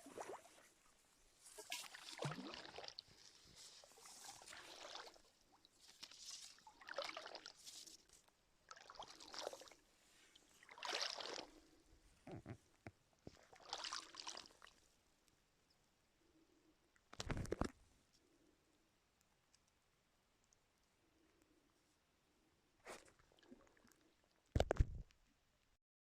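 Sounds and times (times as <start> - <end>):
oars swishing through water: 0.0 - 11.7, 13.3 - 14.8.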